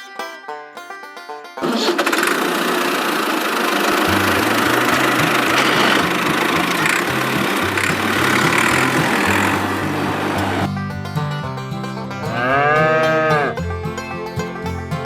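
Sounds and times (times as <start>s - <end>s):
engine running with a rattle: 1.6s - 15.0s
low rhythmic bass music: 3.9s - 15.0s.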